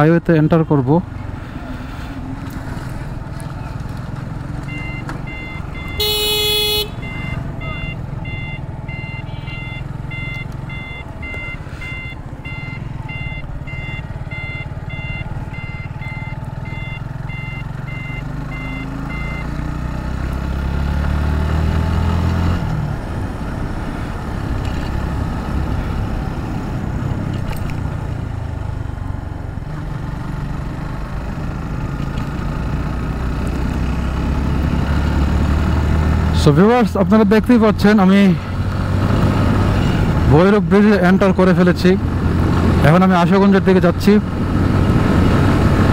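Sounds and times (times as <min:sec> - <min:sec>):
motorcycle engine revving: 0:01.0 - 0:45.9
electronic beeping: 0:04.7 - 0:06.1, 0:06.9 - 0:19.5.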